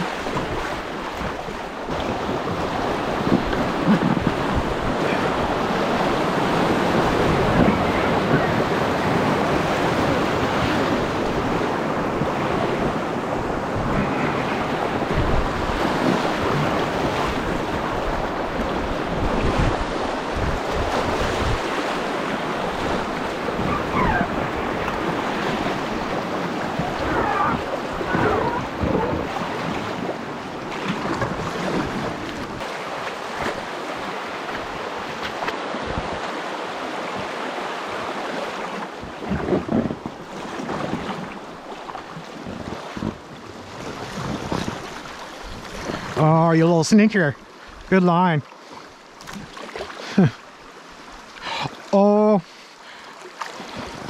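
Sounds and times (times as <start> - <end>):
wind buffeting microphone: 0.0 - 32.6, 42.1 - 46.2
river water rushing: 0.0 - 39.0, 40.2 - 54.0.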